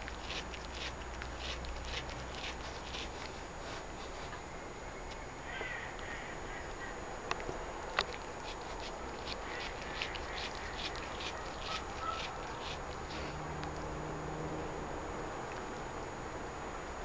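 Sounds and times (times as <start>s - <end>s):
cat crunching cucumber: 0.0s - 4.5s, 7.3s - 13.9s.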